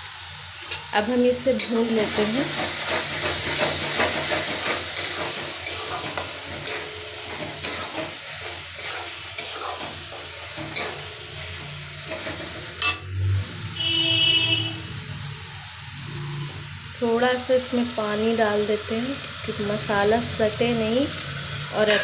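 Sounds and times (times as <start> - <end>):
masala sizzling in oil: 0.0 - 22.0
spatula scraping and clinking on pan: 2.5 - 13.0.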